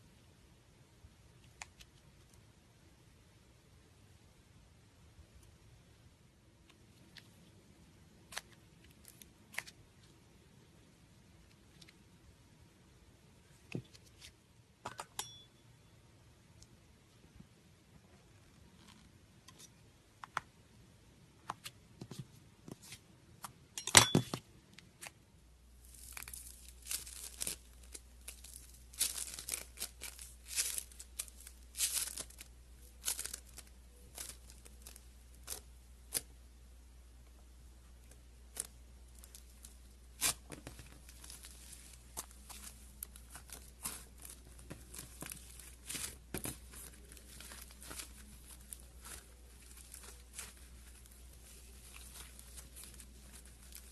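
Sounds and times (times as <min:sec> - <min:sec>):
slime crackling and popping: 0:25.8 - 0:36.3, 0:38.0 - 0:53.9.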